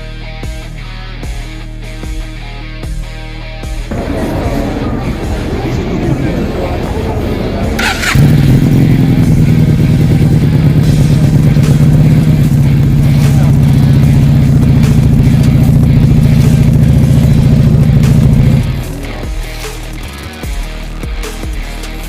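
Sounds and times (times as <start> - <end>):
motorcycle engine running steadily: 6.2 - 21.8.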